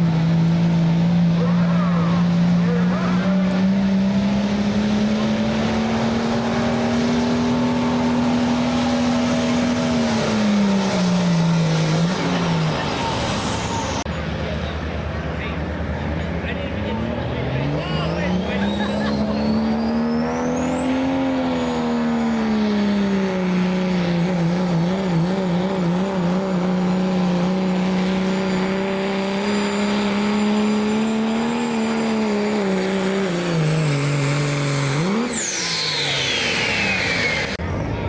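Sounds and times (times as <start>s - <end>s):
diesel truck engine at full throttle: 0.0s - 38.0s
turbocharger whistle: 7.3s - 14.0s, 17.7s - 22.6s, 28.3s - 37.9s.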